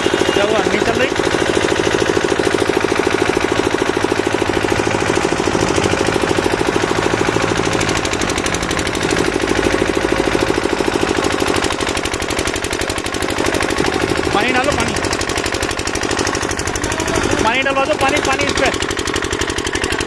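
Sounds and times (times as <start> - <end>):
machine pounding rapidly: 0.0 - 20.0.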